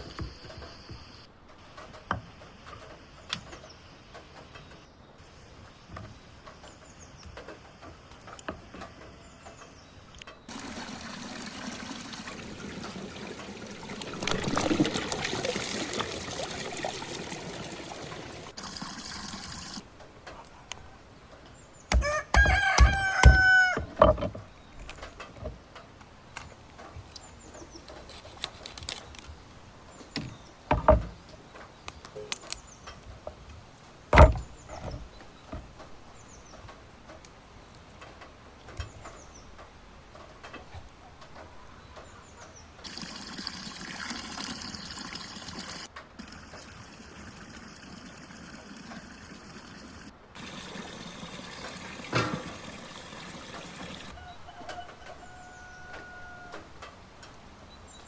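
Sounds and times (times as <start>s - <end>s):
rooster crowing: 21.9s - 24.0s, 54.1s - 56.8s
sharp knocks: 21.9s - 24.5s, 30.2s - 31.3s, 34.1s - 35.7s.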